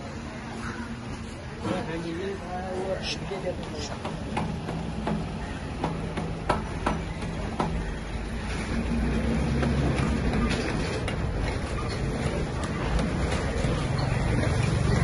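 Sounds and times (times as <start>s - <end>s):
diesel generator engine knocking: 3.9s - 15.0s.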